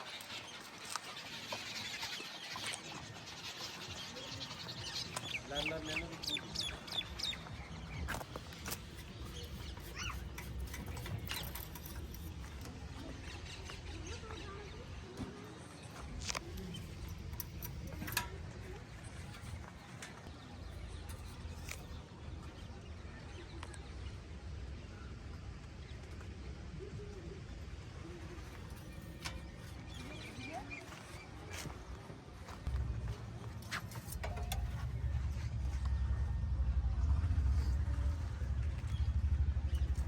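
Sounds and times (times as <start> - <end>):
birds chirping: 0.0 - 40.0
low steady rumble: 32.6 - 40.0.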